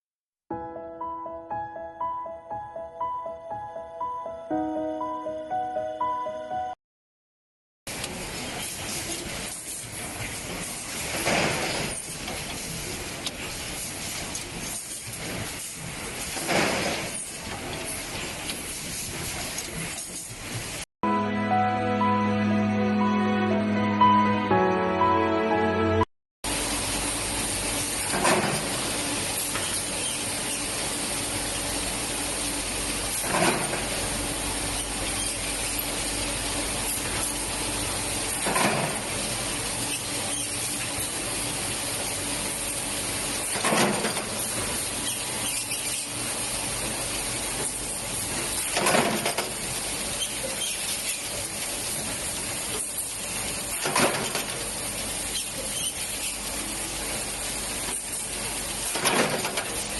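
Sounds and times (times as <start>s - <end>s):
machine work cycle sound: 7.9s - 20.8s, 26.4s - 59.9s
machinery hissing and humming: 7.9s - 20.8s, 26.5s - 59.9s.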